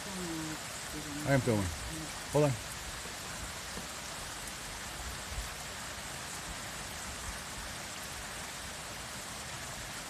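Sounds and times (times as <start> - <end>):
water hissing: 0.0 - 4.9.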